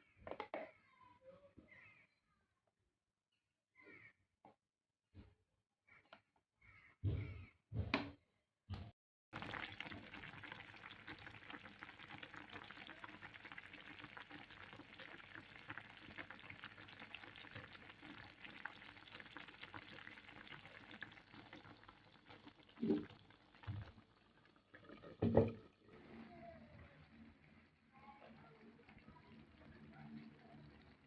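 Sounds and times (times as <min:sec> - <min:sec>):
food sizzling in a pan: 0:09.4 - 0:24.4.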